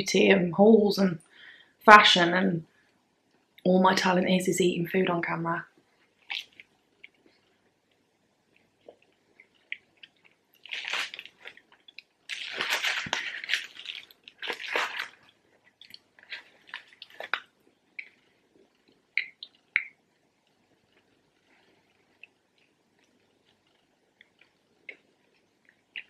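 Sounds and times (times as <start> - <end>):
wet chewing with mouth clicks: 6.0 - 26.0
biting and chewing: 8.6 - 20.0.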